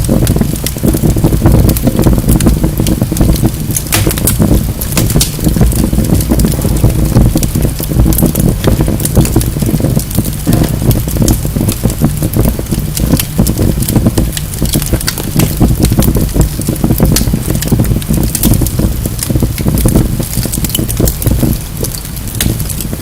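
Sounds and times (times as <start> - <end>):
logs crackling and popping: 0.0 - 23.0
low roar of flames: 0.0 - 23.0.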